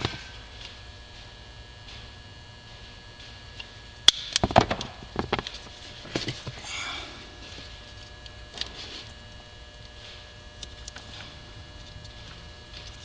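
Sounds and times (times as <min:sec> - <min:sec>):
knocks and rustles: 0:04.4 - 0:06.6.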